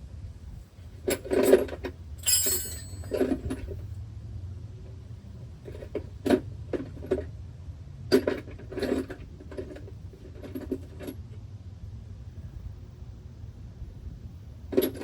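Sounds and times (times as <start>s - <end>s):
metal hand tools clinking: 2.2s - 3.5s.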